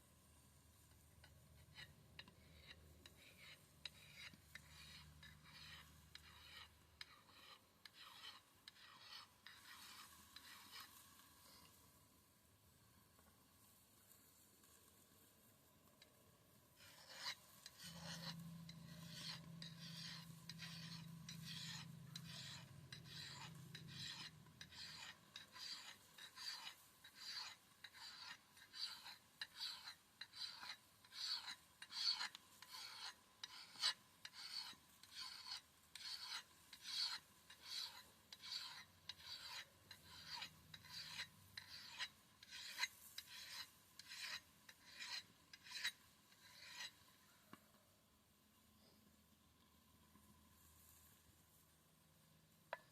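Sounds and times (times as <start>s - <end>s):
axe blade rasping strokes: 0.9s - 11.8s, 16.8s - 47.2s.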